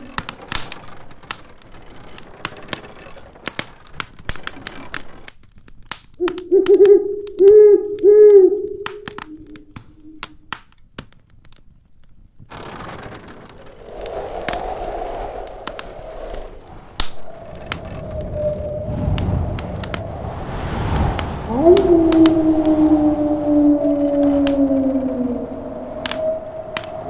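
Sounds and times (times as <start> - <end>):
wood fire crackling: 0.0 - 27.0
howling wind gust: 6.2 - 10.2, 12.6 - 27.0
low hooting call: 6.2 - 10.2, 13.6 - 27.0.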